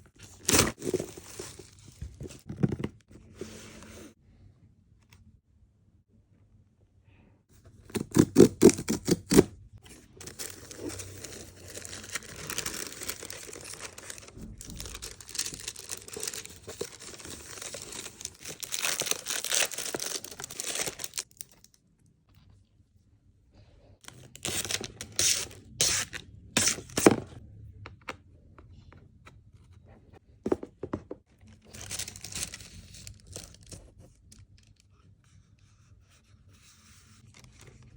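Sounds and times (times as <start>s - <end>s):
packaging crackling and tearing: 10.2s - 21.7s, 31.8s - 33.8s.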